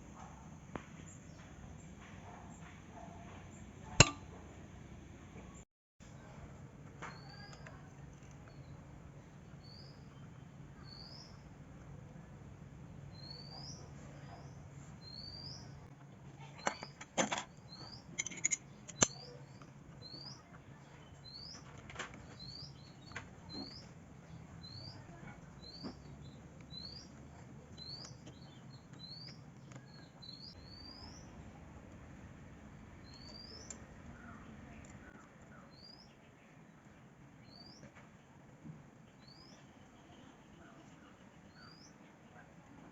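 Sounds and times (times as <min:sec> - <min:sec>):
small bird chirping: 0:07.1 - 0:08.9, 0:09.5 - 0:11.5, 0:13.1 - 0:15.9, 0:27.8 - 0:31.6, 0:33.0 - 0:36.4, 0:37.4 - 0:37.9.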